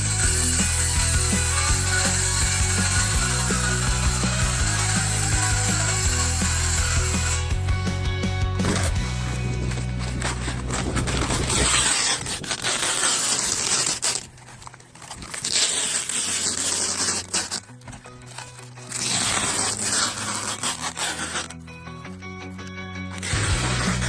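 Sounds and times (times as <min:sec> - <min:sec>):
background music: 0:00.0 - 0:11.7, 0:17.8 - 0:24.0
rough scraping noise: 0:00.0 - 0:21.7, 0:23.1 - 0:24.0.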